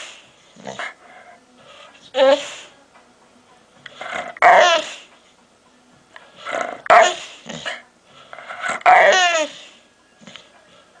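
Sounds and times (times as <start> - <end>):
dog growling and grumbling: 0.5 - 1.0, 6.4 - 7.8.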